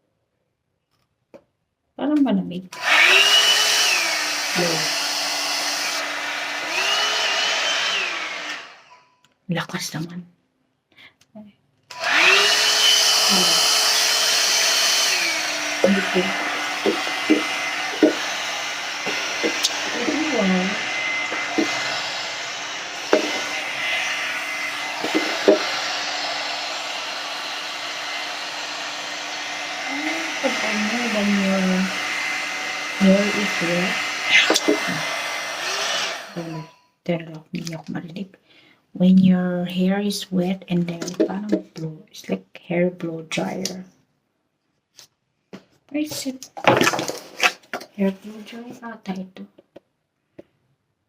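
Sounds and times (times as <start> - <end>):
hair dryer running: 2.7 - 8.9, 11.9 - 36.8.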